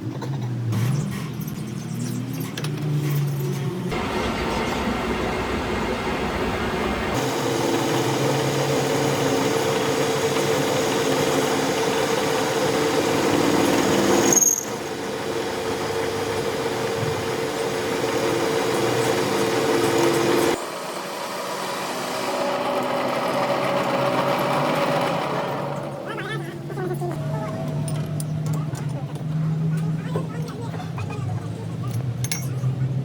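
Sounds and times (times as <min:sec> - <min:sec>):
power tool motor whirring: 0:07.1 - 0:26.1.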